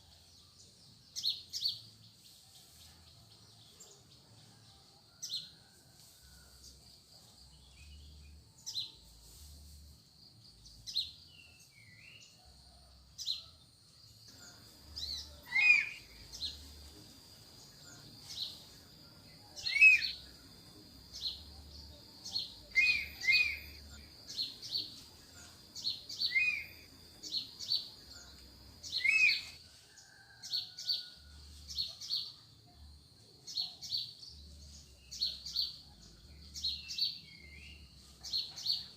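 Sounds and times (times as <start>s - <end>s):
short high bird calls: 15.4s - 16.1s, 19.6s - 20.2s, 22.7s - 23.8s, 26.3s - 26.9s.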